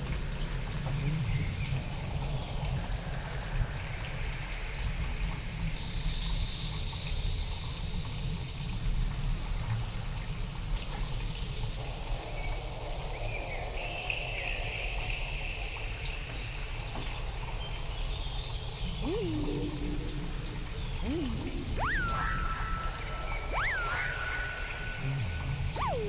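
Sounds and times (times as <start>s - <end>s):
faint high tone: 18.8s - 26.0s
trickling water: 18.8s - 26.0s.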